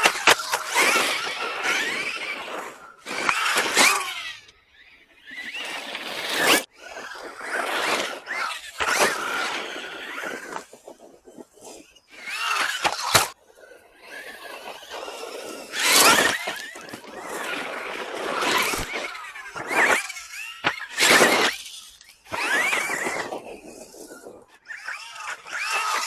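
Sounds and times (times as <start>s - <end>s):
electric motor whining: 0.0s - 13.4s, 14.0s - 26.0s
tyres scrabbling on dirt: 0.0s - 13.4s, 14.1s - 26.0s.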